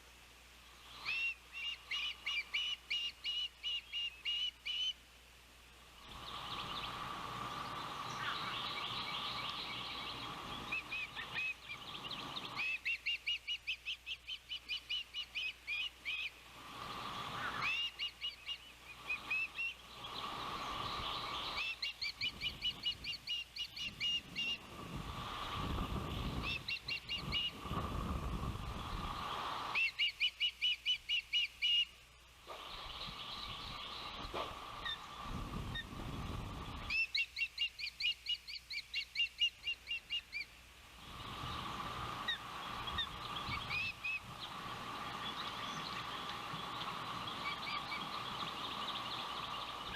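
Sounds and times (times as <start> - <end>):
birds whistling chirps: 0.8 - 5.0, 6.1 - 27.8, 28.7 - 31.9, 32.5 - 40.5, 41.2 - 49.9
wind rumble on microphone: 19.9 - 29.7, 32.5 - 37.0, 41.0 - 49.9.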